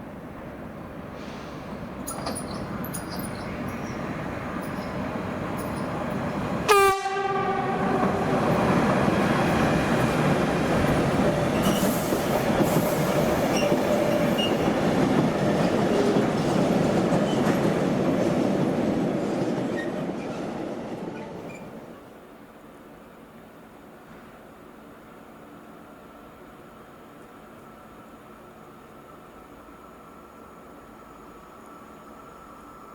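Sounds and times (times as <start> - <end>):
train wheels rumbling on rails: 0.0 - 22.1
train horn blast: 6.7 - 8.0.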